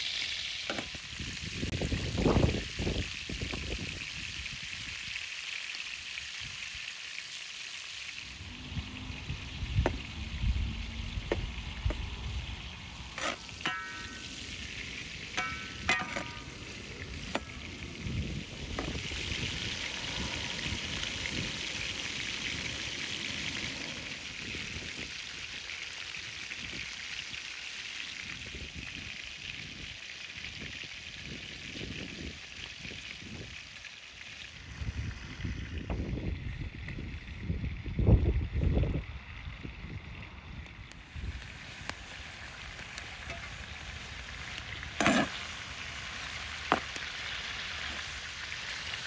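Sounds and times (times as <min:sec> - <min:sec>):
meat sizzling in a pan: 0:00.0 - 0:49.0
metal utensil knocking on pan: 0:13.6 - 0:14.2, 0:15.4 - 0:16.5.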